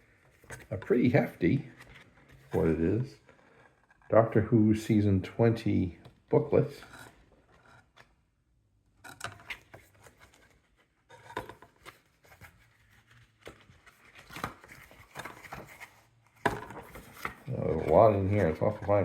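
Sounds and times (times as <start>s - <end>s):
paper pages rustling: 0.0s - 4.0s, 9.3s - 19.0s.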